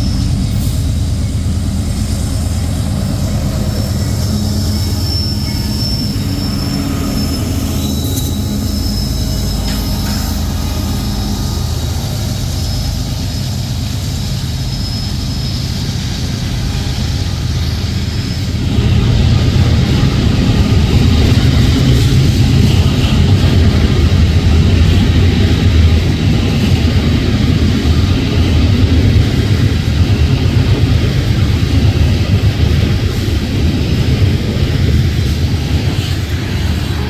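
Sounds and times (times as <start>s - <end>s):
high wheel squeal: 0.0s - 37.0s
train rumbling past: 0.0s - 37.0s.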